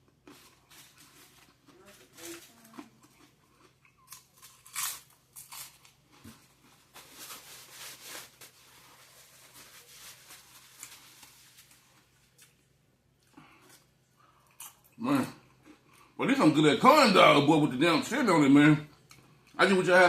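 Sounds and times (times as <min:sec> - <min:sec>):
food crunching and crinkling: 0:00.0 - 0:16.1
rustling: 0:06.3 - 0:12.4.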